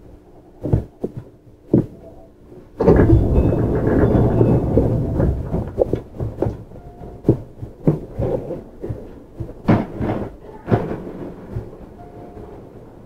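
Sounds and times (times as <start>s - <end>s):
train rumble: 2.1s - 13.0s
sharp knocks: 2.8s - 12.5s.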